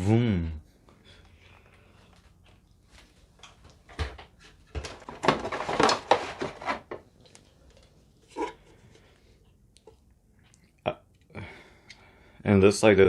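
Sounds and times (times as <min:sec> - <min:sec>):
plastic packaging rustling and clattering: 0:02.9 - 0:08.7.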